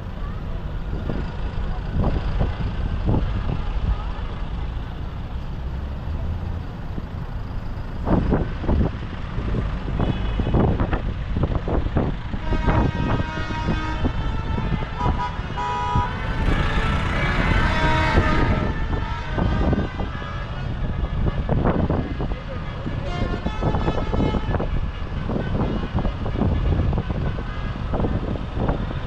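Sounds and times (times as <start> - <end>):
tractor engines rumbling: 0.0 - 29.0
horn tooting held tones: 12.4 - 21.6.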